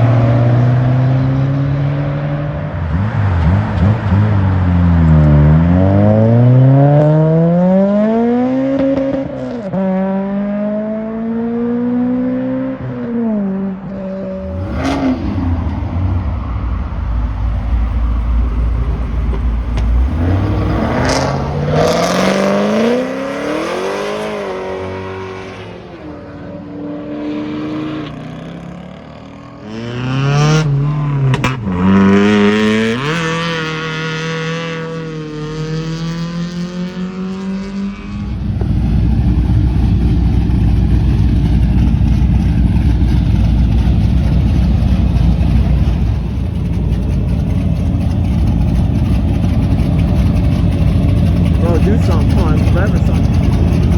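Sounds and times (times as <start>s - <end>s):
cars accelerating hard: 0.0s - 53.9s
sharp exhaust cracks: 38.3s - 53.9s.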